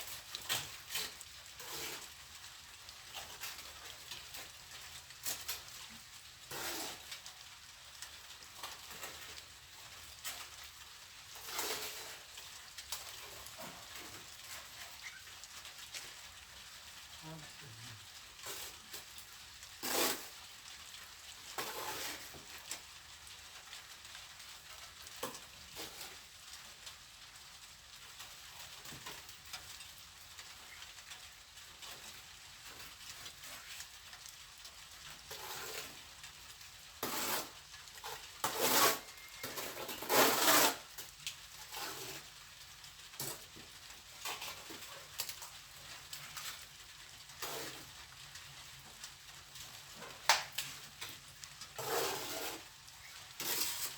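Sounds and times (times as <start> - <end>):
trowel scraping mortar: 0.5 - 2.1, 6.5 - 7.1, 19.8 - 20.3, 21.6 - 22.3, 35.3 - 36.0, 37.0 - 40.9, 51.8 - 52.7, 53.4 - 53.9.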